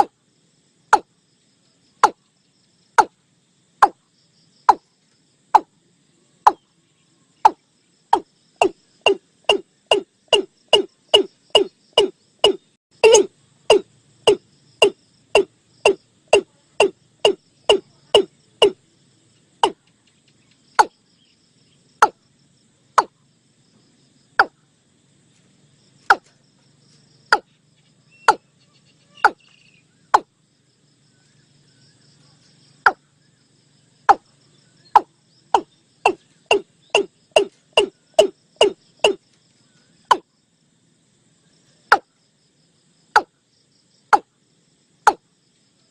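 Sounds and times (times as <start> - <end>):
bird short sharp call notes: 10.8 - 14.4.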